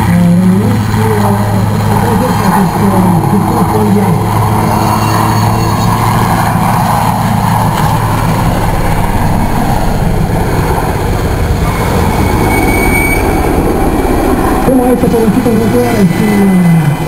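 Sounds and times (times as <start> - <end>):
helicopter in flight: 0.0 - 17.0.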